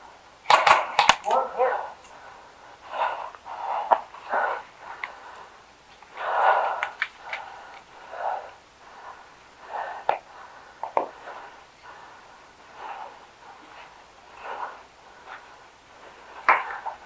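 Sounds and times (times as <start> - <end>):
heavy breathing: 0.0 - 17.0
sharp clicks: 0.4 - 1.4.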